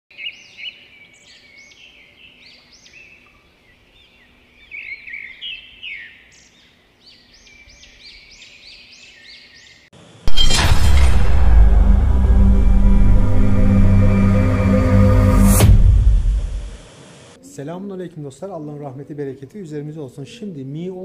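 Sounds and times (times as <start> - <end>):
small birds chirping: 0.1 - 9.9.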